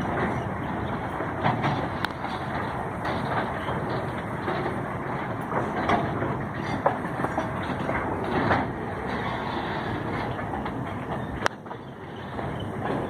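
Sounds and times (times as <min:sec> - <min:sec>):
freight train wagons rumbling: 0:00.0 - 0:13.0
wheels knocking on rails: 0:00.0 - 0:13.0.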